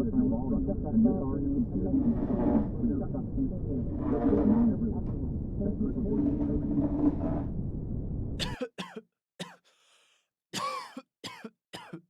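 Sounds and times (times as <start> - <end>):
people coughing: 8.4 - 9.6, 10.6 - 12.0
throat-clearing: 8.4 - 9.6, 10.6 - 12.0.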